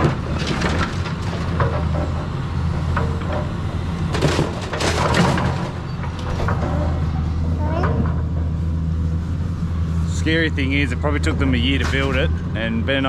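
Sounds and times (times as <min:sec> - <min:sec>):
clattering bursts: 0:00.0 - 0:08.7, 0:11.2 - 0:12.5
low machine engine running: 0:00.0 - 0:13.0.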